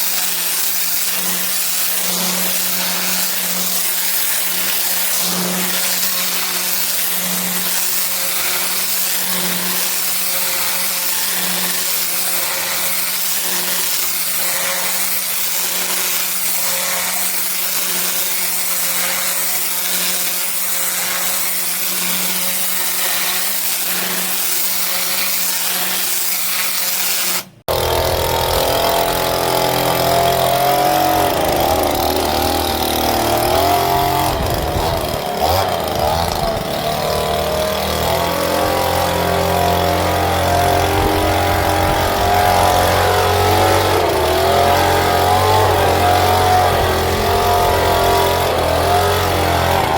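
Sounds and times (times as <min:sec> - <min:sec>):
pressure washer spray hissing: 0:00.0 - 0:27.6
engine hum: 0:27.7 - 0:49.9
engine running with wavering pitch: 0:27.7 - 0:49.9.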